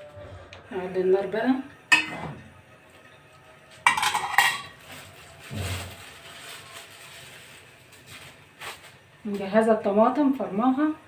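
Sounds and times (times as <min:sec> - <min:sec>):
metal utensil clattering on pan: 0:01.9 - 0:02.3, 0:03.8 - 0:04.8
onions frying: 0:03.6 - 0:09.8.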